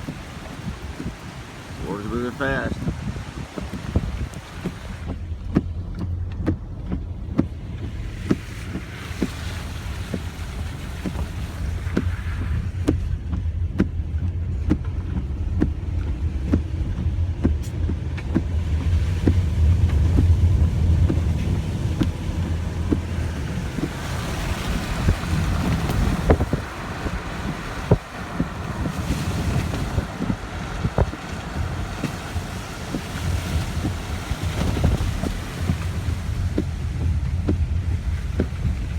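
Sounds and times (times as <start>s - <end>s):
small knocks and bumps: 0.0s - 1.6s, 2.8s - 9.4s, 10.1s - 33.1s, 33.8s - 38.9s
vehicle rumble from inside cabin: 0.0s - 38.9s
wind buffeting microphone: 0.0s - 38.9s.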